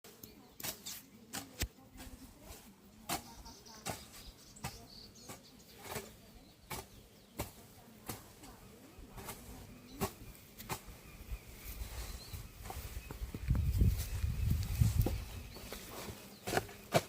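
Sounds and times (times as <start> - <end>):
hoe chopping into soil: 2.5 - 8.4, 9.2 - 11.0, 15.0 - 17.0.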